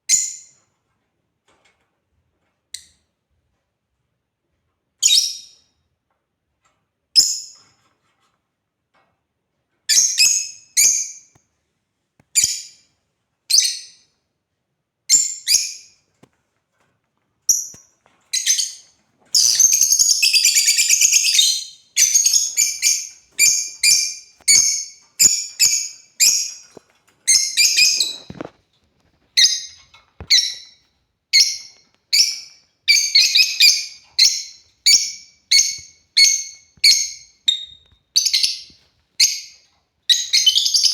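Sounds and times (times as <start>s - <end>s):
lovebirds chirping: 17.5s - 28.5s, 29.4s - 40.9s.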